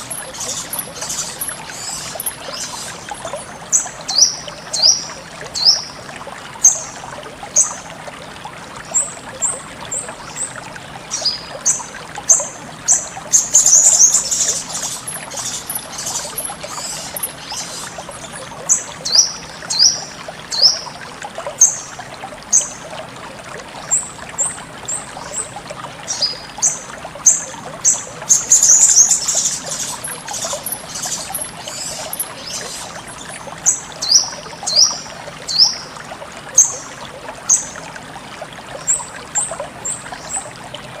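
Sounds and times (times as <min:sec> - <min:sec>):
songbird chirping: 0:00.0 - 0:05.9, 0:11.1 - 0:20.9, 0:26.1 - 0:35.8
running water trickling: 0:00.0 - 0:41.0.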